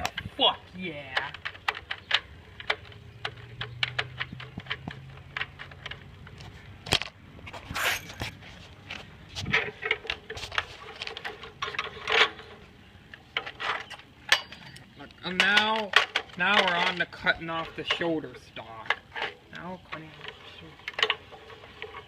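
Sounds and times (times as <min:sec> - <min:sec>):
plastic parts clicking and rattling: 0:00.0 - 0:22.0
plastic scrapes: 0:07.4 - 0:12.3.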